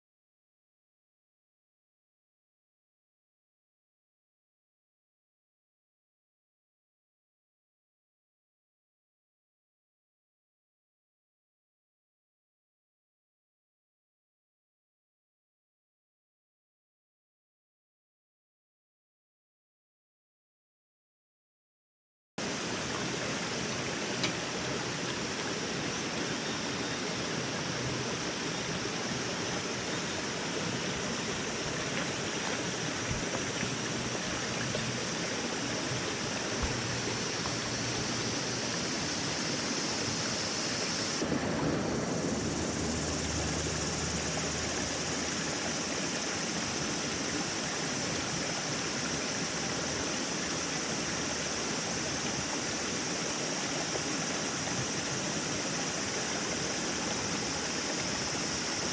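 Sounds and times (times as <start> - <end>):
steady rushing noise: 22.4 - 45.9.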